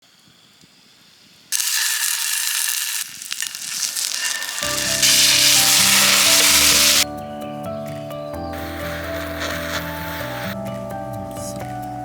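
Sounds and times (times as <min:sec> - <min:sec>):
food sizzling in a frying pan: 0:01.5 - 0:07.0
music: 0:04.6 - 0:12.0.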